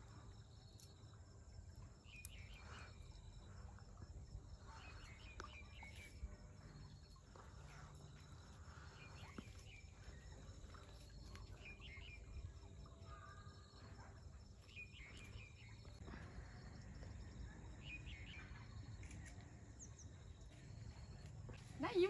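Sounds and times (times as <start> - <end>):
bird chirping: 8.7 - 22.0.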